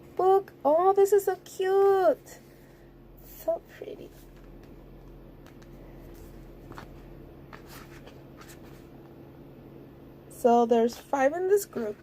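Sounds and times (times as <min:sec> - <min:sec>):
steady low hum: 0:00.0 - 0:12.0
soft paper rustles: 0:03.8 - 0:08.9
pages being turned: 0:04.1 - 0:08.9.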